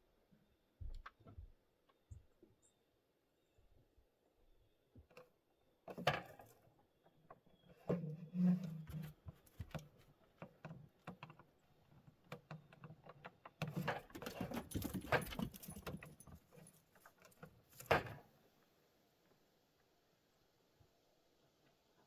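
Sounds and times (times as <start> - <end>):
small metal objects jangling: 14.2 - 17.9.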